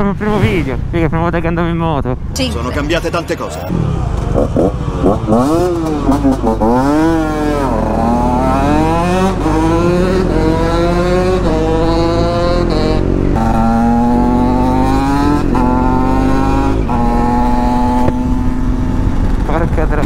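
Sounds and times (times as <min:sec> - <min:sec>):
motorcycle engine accelerating: 0:03.5 - 0:20.0.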